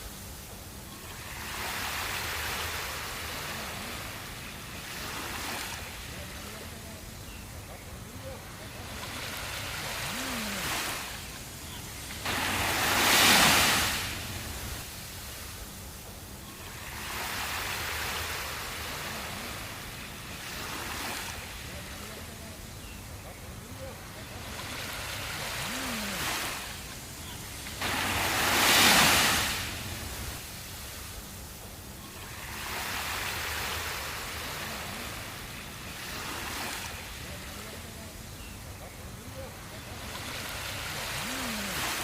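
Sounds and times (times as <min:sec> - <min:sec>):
surf hiss on beach: 0:00.0 - 0:42.0
wave washing up: 0:08.1 - 0:15.6, 0:23.6 - 0:31.5, 0:39.3 - 0:42.0.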